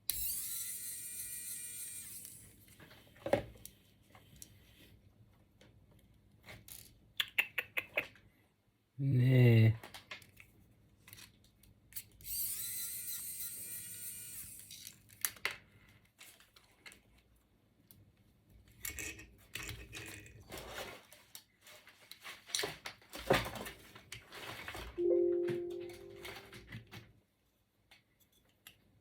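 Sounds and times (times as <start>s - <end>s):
small electric motor whining: 0.1s - 2.6s, 12.2s - 15.0s.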